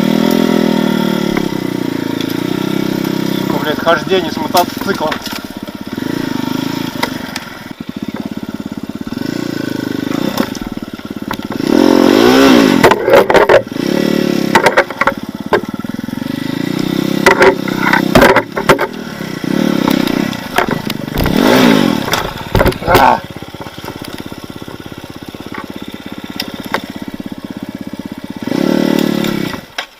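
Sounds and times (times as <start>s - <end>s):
dirt bike engine revving: 0.0s - 29.9s
sharp knocks and clatters: 12.8s - 13.7s, 14.5s - 15.8s, 17.2s - 19.0s, 19.8s - 24.3s.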